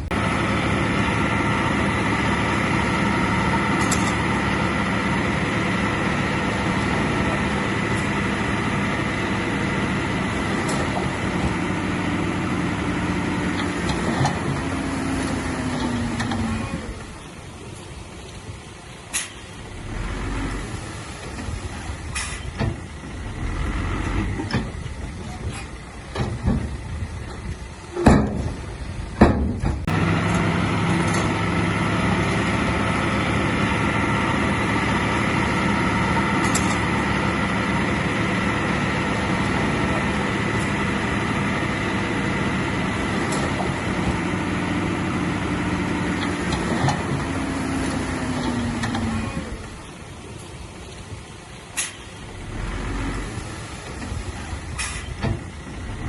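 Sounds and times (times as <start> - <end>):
heavy diesel engine running: 0.0 - 56.0
metal clanks and knocks: 28.0 - 30.4.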